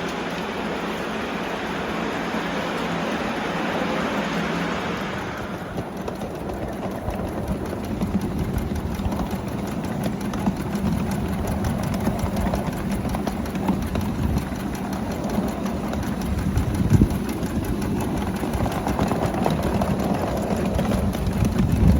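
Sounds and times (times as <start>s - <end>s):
low hum: 0.0s - 11.4s
miniature locomotive engine drone: 0.0s - 21.9s.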